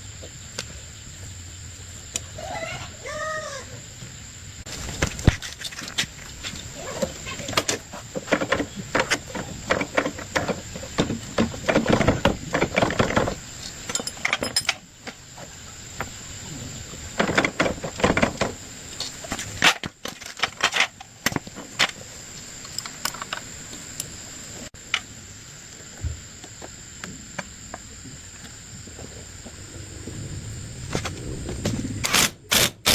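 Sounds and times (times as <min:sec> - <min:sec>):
steady high-pitched hum: 0:00.0 - 0:32.9
clattering knocks and clicks: 0:07.4 - 0:15.2, 0:17.2 - 0:18.6.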